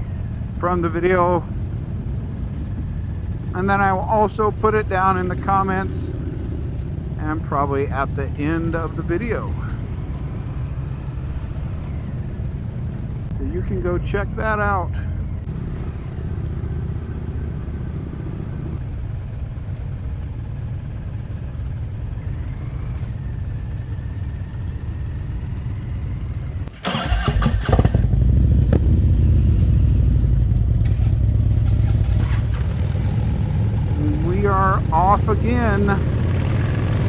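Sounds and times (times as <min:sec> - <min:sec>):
motorcycle engine idling and revving: 0:00.0 - 0:37.0.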